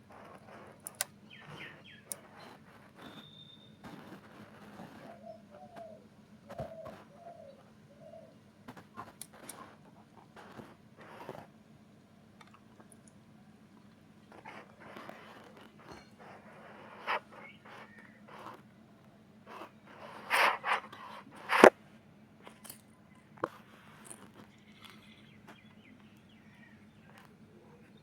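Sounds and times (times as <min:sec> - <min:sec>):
faint steady hum: 0:00.0 - 0:28.0
scraping: 0:19.5 - 0:21.7.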